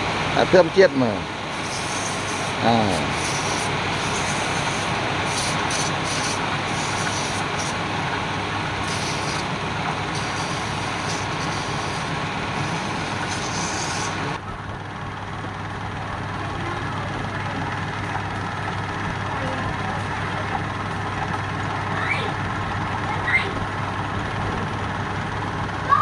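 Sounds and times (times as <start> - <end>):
tool hissing on spinning wood: 1.4 - 14.4
wood lathe motor hum: 1.4 - 14.4.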